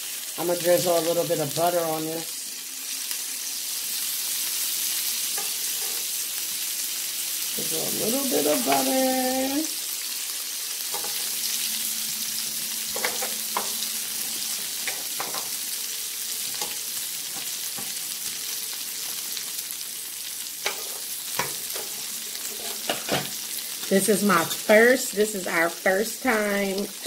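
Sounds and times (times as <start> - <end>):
food sizzling on a griddle: 0.0 - 27.0
metal tongs clicking on griddle: 10.9 - 11.2, 16.5 - 16.8.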